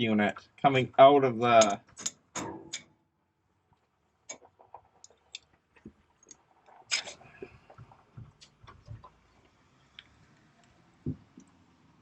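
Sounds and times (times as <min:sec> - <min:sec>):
faint clicks and light knocks: 0:03.7 - 0:11.6.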